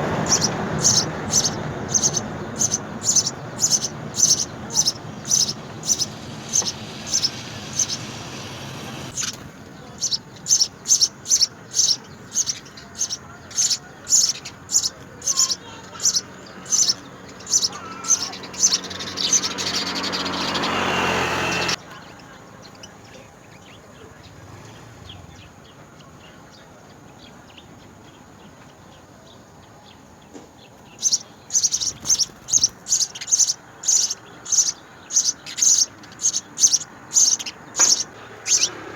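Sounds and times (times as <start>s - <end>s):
rushing noise: 0.0s - 9.7s
sparrow chirping: 0.0s - 38.9s.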